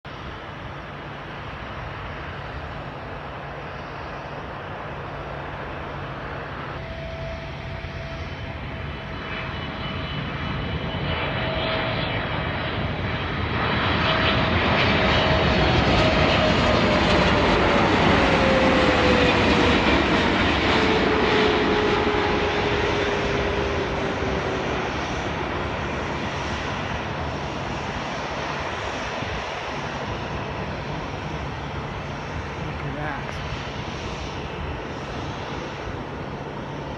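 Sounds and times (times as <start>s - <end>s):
jet engines passing: 0.1s - 36.9s
engine whine falling in pitch: 6.7s - 10.2s.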